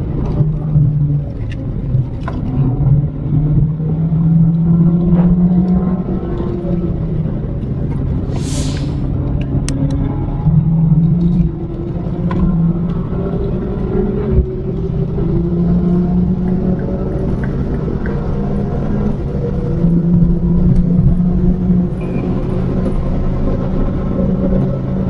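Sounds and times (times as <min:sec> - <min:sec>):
car engine droning: 0:00.0 - 0:25.0
road and tyre noise: 0:00.0 - 0:25.0
brief hiss: 0:08.3 - 0:09.1.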